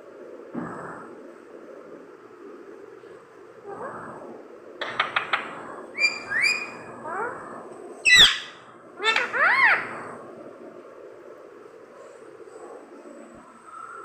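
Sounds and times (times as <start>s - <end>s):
parrot whistled calls: 6.0s - 6.8s, 8.0s - 8.5s.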